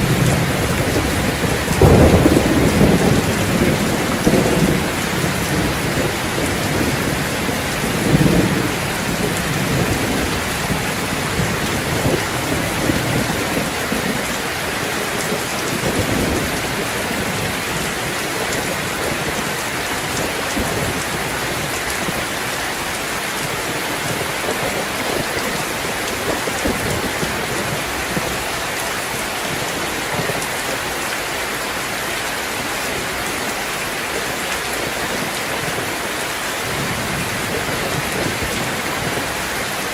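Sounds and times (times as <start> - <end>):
thunder rolling: 0.0 - 28.6
steady rain falling: 0.0 - 39.9.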